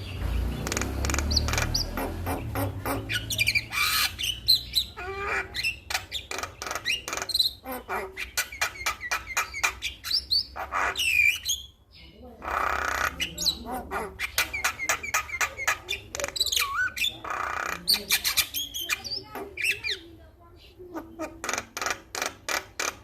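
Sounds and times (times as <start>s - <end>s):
bird singing whistles and squawks: 0.6s - 11.8s.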